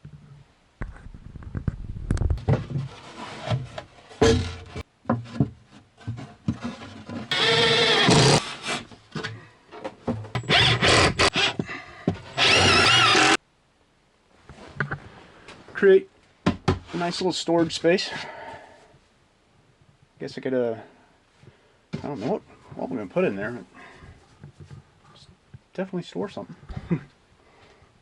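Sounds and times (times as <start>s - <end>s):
plywood boards knocking and scraping: 1.6s - 7.3s
power tool whine: 7.3s - 8.4s, 12.4s - 13.4s.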